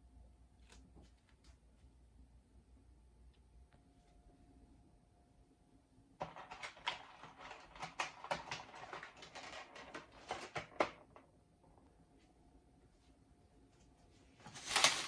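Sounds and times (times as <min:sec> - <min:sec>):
rustling and clattering of objects: 0:06.2 - 0:11.3, 0:14.2 - 0:15.0.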